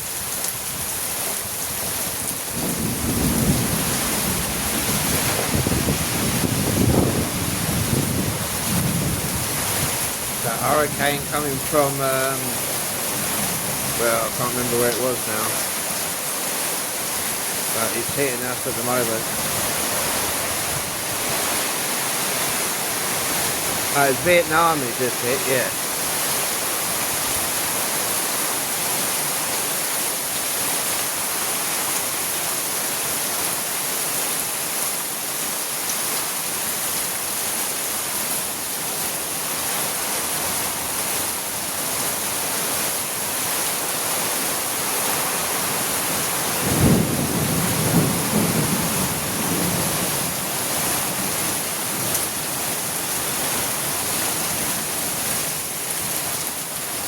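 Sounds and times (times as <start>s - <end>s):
heavy rain pouring: 0.0s - 57.0s
thunder crack and rumble: 2.5s - 9.5s, 46.6s - 50.2s.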